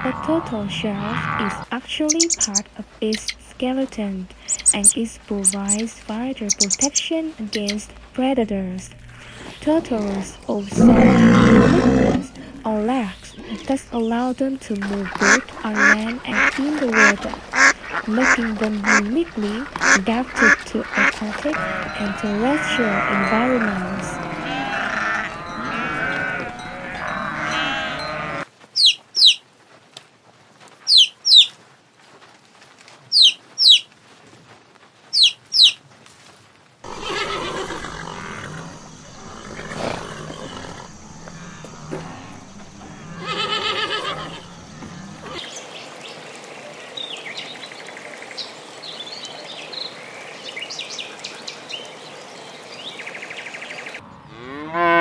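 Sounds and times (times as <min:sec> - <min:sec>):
goats bleating: 0:00.0 - 0:01.7, 0:14.8 - 0:28.5, 0:36.8 - 0:45.4
horse whinnying: 0:10.7 - 0:12.6, 0:21.4 - 0:28.4, 0:36.8 - 0:45.4
sharp high falling calls: 0:14.9 - 0:29.4
fish splashing water: 0:15.0 - 0:21.3.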